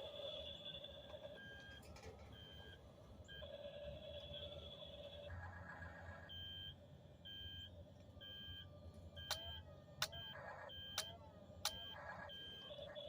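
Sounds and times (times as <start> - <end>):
toy electronic beeping: 6.3 - 6.7, 7.3 - 8.6, 9.2 - 13.0.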